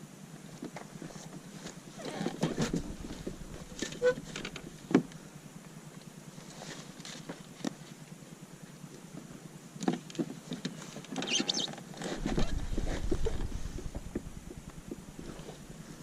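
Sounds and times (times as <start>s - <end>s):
wind buffeting microphone: 2.5s - 4.7s, 12.2s - 15.8s.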